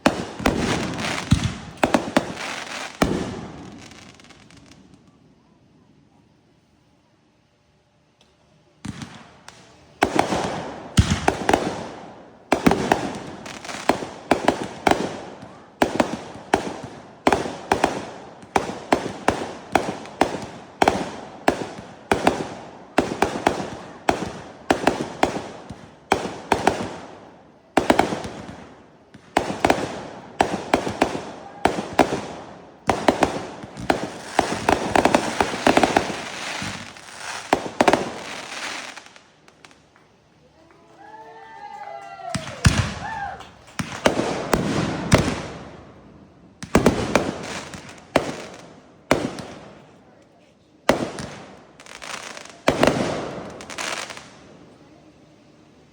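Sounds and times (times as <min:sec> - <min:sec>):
fireworks banging: 0:00.0 - 0:05.0, 0:08.8 - 0:40.7, 0:42.3 - 0:50.0, 0:50.8 - 0:54.4.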